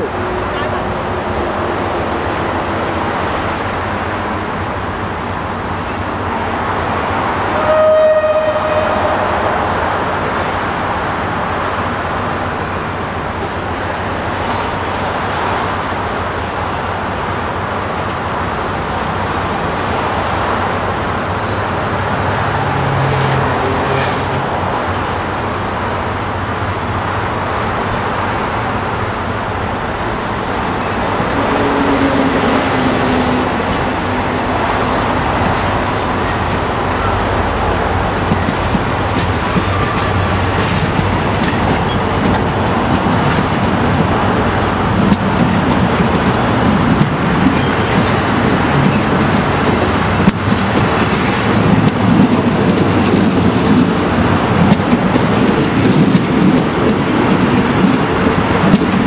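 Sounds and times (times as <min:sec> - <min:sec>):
passenger train rolling past: 0:00.0 - 0:59.0
train horn toot: 0:07.5 - 0:09.4, 0:31.3 - 0:34.2.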